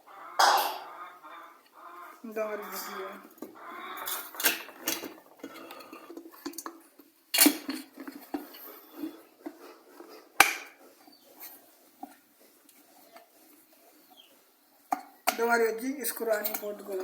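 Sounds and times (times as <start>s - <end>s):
kettle parts clicking and clattering: 0.4s - 0.8s, 3.2s - 10.8s, 14.8s - 17.0s.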